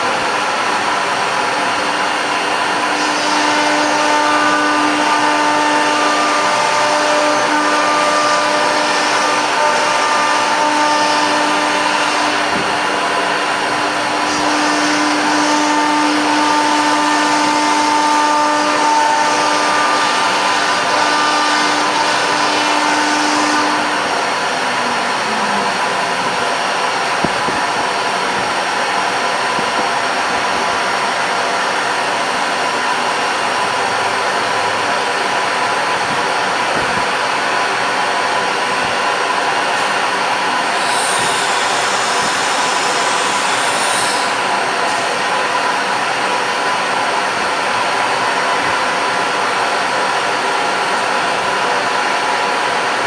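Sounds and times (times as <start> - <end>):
cnc router cutting: 0.0 - 28.4, 39.8 - 46.3.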